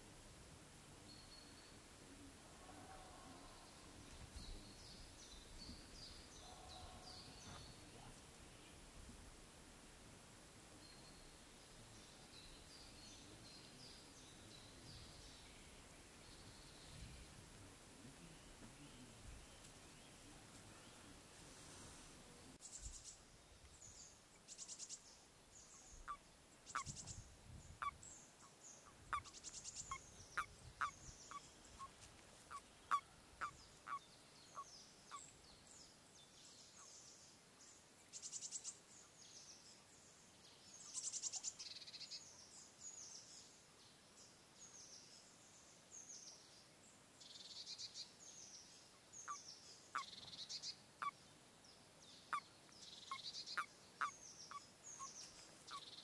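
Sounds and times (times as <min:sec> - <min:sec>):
small birds chirping: 0:22.5 - 0:56.0.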